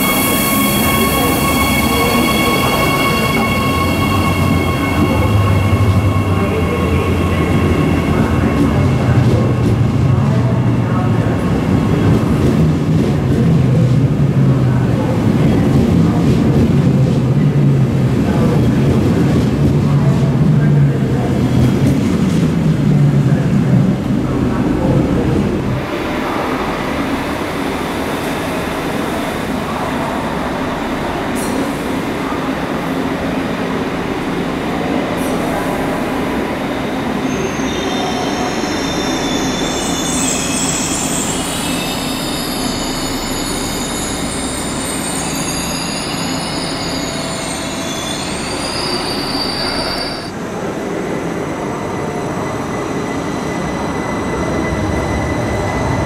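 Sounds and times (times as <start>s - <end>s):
train rolling rumble: 0.0s - 56.0s
high-pitched wheel squeal: 37.2s - 50.3s.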